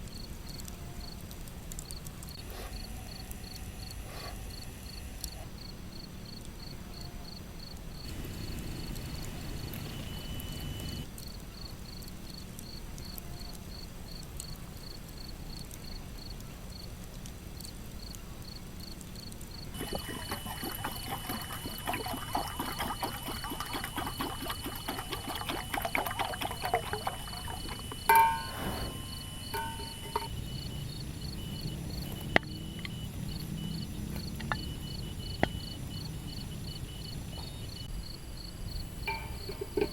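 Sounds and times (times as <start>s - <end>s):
insects chirping: 0.0s - 1.2s, 1.8s - 16.9s, 17.6s - 39.9s
sharp clink with ring: 28.1s - 30.3s, 39.0s - 39.6s.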